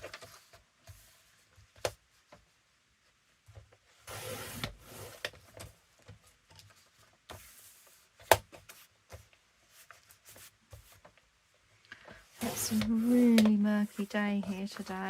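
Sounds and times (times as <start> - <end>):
paper rustling: 12.0 - 15.0.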